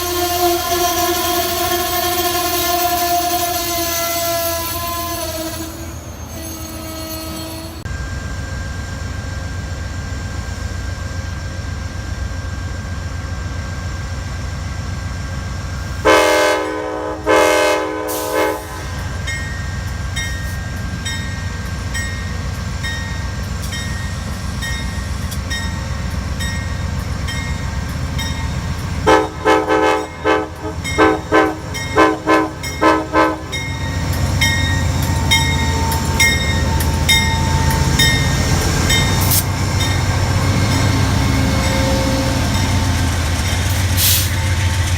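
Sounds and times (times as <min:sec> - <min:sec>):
train horn blasts: 0:00.0 - 0:07.8, 0:16.0 - 0:19.2, 0:29.0 - 0:37.9
train horn short toots: 0:00.0 - 0:07.8, 0:16.0 - 0:19.1, 0:29.0 - 0:34.0
train rumbling: 0:00.0 - 0:44.9.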